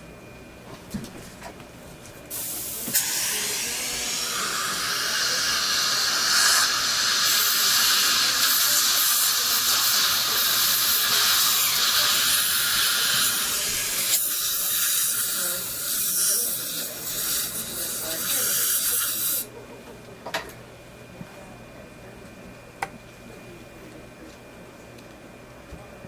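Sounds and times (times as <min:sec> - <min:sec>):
hiss of air and water spray: 0:02.3 - 0:15.2.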